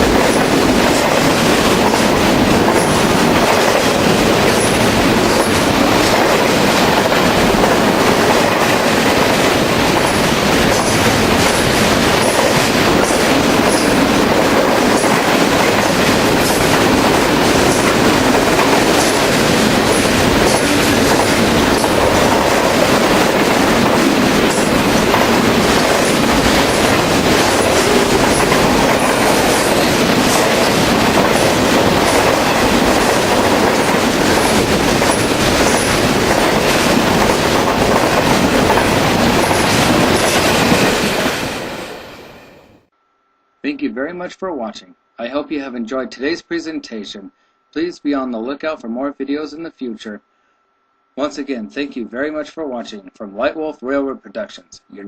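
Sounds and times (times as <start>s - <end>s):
freight train rumbling: 0.0s - 42.9s.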